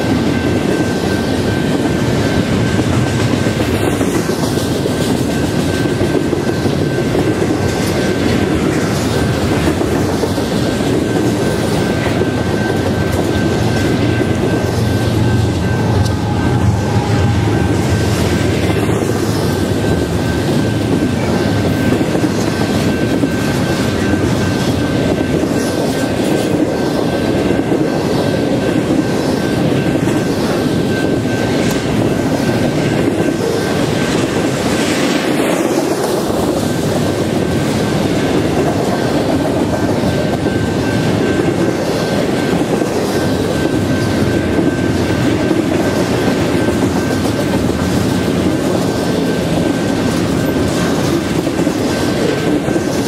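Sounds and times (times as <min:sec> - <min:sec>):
train wheels rumbling on rail: 0:00.0 - 0:53.0
thin high whine: 0:10.5 - 0:27.2.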